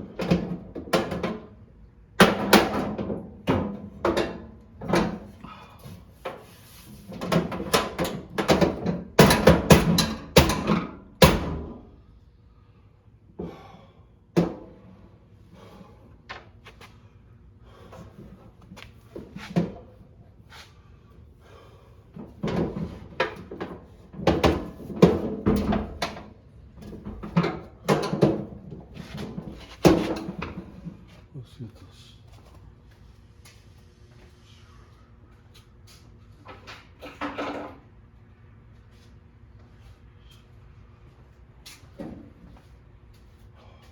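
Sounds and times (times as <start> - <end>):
hard objects knocking and clattering: 7.2 - 11.7.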